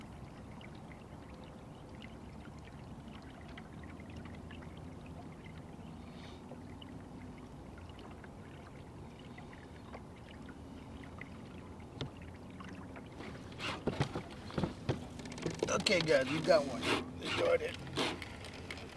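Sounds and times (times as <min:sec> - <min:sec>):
water lapping against a hull: 0:00.0 - 0:18.9
sharp knocks: 0:13.6 - 0:16.1.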